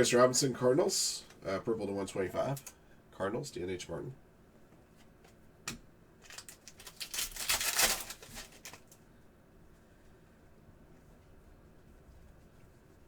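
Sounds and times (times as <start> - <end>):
rustling foil wrappers and cards: 6.2 - 9.0.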